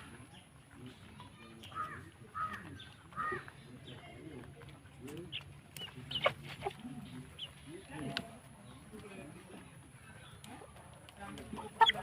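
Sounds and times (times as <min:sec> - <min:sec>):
chickens calling: 0:00.0 - 0:12.0
soft clucking: 0:01.6 - 0:08.4, 0:10.4 - 0:12.0.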